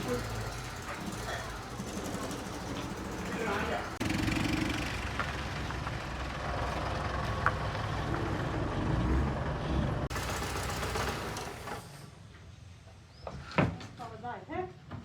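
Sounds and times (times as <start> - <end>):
vehicle engine rumbling: 0.0 - 11.7.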